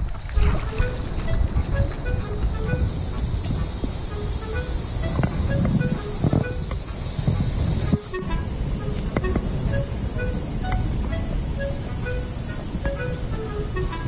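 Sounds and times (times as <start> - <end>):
insects chorus: 0.0 - 14.0
low rumbling noise: 0.0 - 14.0.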